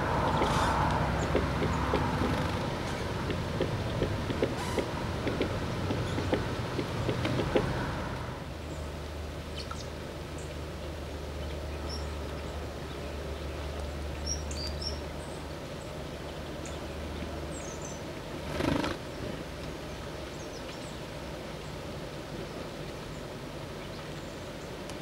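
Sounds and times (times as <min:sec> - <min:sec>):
birds chirping: 0:00.0 - 0:07.7
steady low hum: 0:00.0 - 0:14.2.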